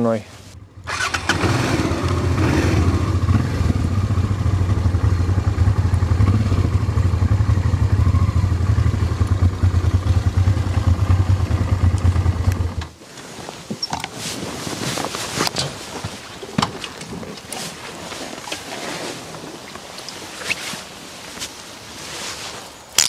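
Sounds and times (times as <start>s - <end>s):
motorcycle engine running: 0.6s - 13.0s.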